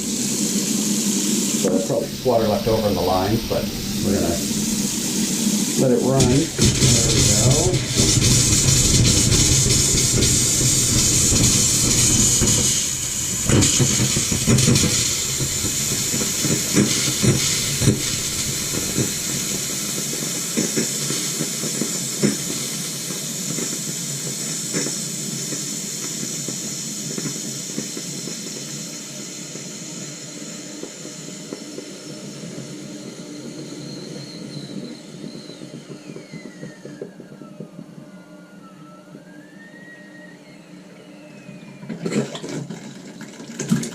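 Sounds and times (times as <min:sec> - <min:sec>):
tap water spitting and hissing: 0:00.0 - 0:32.8, 0:42.1 - 0:43.9.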